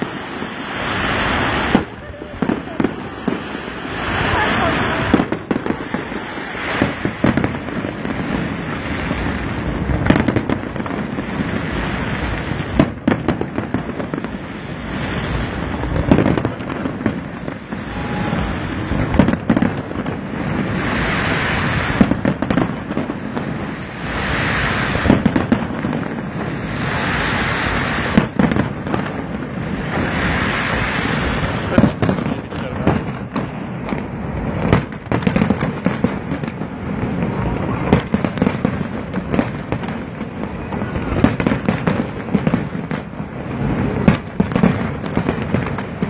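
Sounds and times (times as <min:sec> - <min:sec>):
crackling hiss: 0:00.0 - 0:46.0
firework shells bursting: 0:12.2 - 0:43.3.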